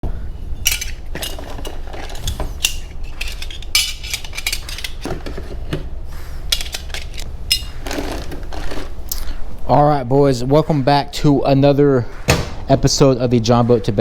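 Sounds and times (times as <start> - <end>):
steady low hum: 0.0 - 14.0
metal parts clinking: 0.5 - 5.8, 6.4 - 8.2.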